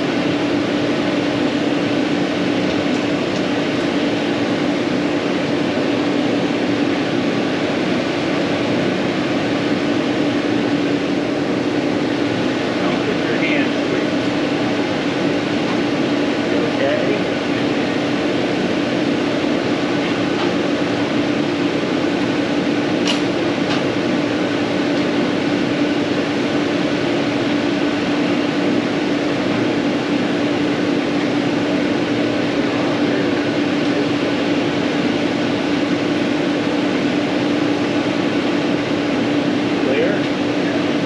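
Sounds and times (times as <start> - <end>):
steady mechanical hum: 0.0 - 41.0
sharp click: 23.0 - 23.8.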